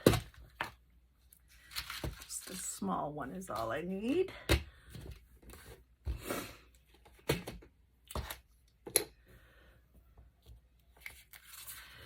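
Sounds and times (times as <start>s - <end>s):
paper rustling: 11.0s - 12.0s.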